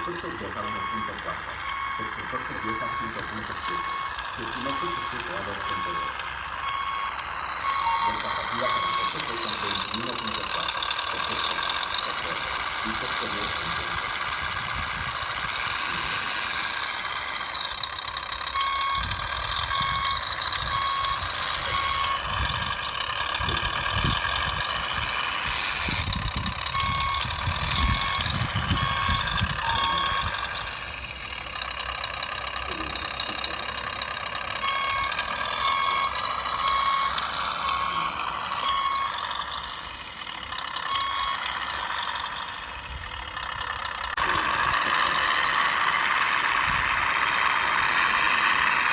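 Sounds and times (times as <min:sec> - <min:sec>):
electronic reversing beeper: 0:00.0 - 0:14.7, 0:18.6 - 0:26.0, 0:26.7 - 0:30.9, 0:34.6 - 0:39.3, 0:40.8 - 0:42.0
mechanical running noise: 0:00.0 - 0:48.9.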